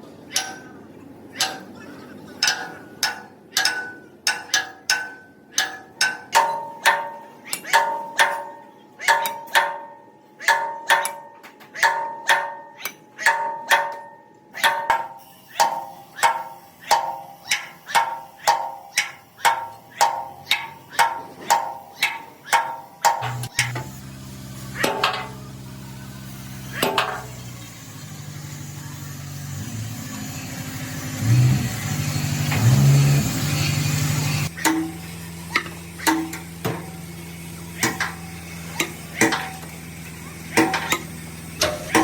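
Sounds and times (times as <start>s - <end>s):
hammer ringing on metal: 1.4s - 24.0s, 24.8s - 25.5s, 26.7s - 27.4s, 34.5s - 37.1s, 37.8s - 42.0s.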